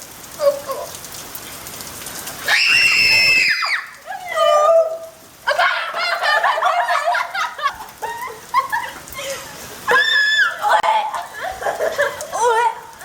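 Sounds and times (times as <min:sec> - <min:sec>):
high-pitched scream: 0:02.5 - 0:03.9
girls giggling: 0:05.5 - 0:09.7, 0:10.6 - 0:12.6.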